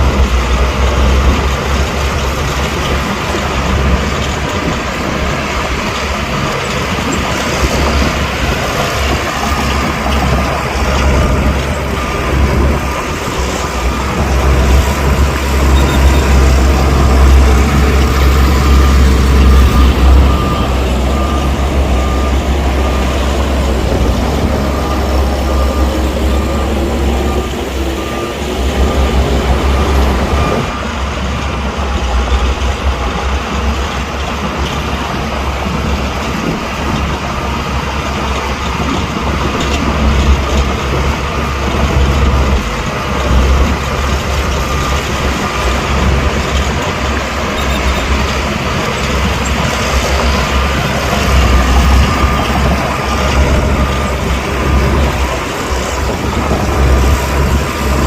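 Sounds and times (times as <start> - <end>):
diesel earthmoving machinery engine: 0.0 - 58.0
backup alarm beeping: 7.5 - 32.1, 39.9 - 58.0.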